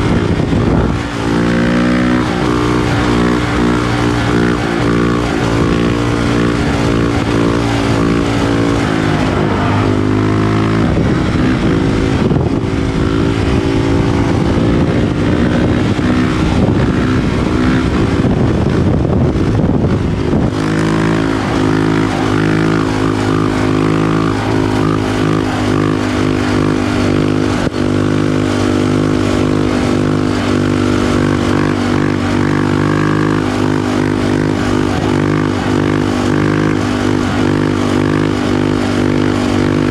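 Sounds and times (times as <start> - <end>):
motorcycle engine running: 0.0 - 39.9
wind rumble on microphone: 0.0 - 39.9.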